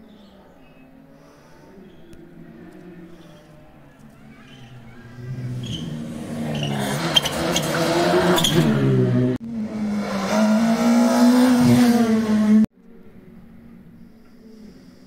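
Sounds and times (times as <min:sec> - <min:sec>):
rally car engine accelerating: 0:04.5 - 0:12.7
engine held at high revs: 0:05.2 - 0:12.7.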